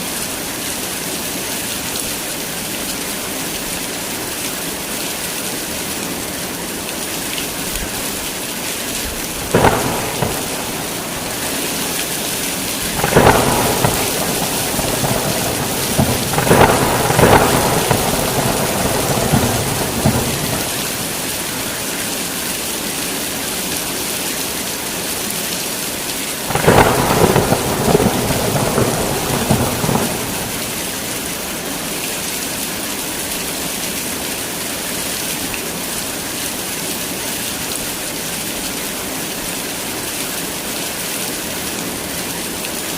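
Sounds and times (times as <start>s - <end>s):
heavy rain falling: 0.0s - 42.9s
thunder rumbling: 9.1s - 22.1s, 26.5s - 31.5s.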